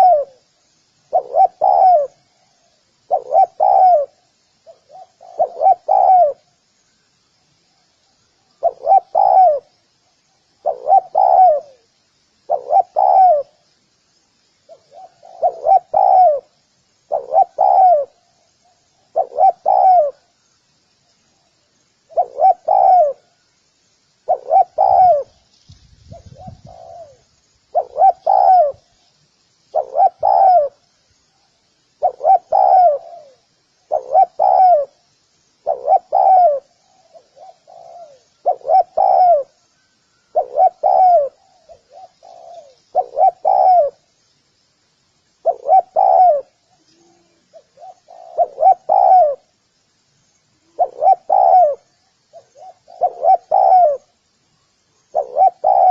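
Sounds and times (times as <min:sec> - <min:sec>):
dove cooing: 0:00.0 - 0:00.5, 0:01.1 - 0:06.5, 0:08.6 - 0:09.7, 0:10.6 - 0:11.9, 0:12.5 - 0:13.6, 0:14.7 - 0:20.3, 0:22.1 - 0:23.4, 0:24.3 - 0:25.4, 0:26.1 - 0:28.9, 0:29.7 - 0:30.8, 0:32.0 - 0:35.0, 0:35.6 - 0:44.1, 0:45.4 - 0:49.5, 0:50.6 - 0:54.1, 0:55.1 - 0:55.9
faint high chirping: 0:00.0 - 0:55.9.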